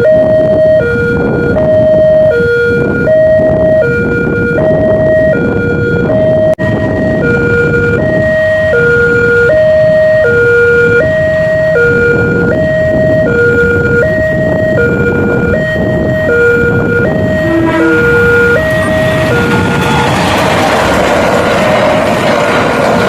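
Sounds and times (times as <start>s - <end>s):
two-tone crossing alarm: 0.0s - 23.0s
low rumble: 17.2s - 23.0s.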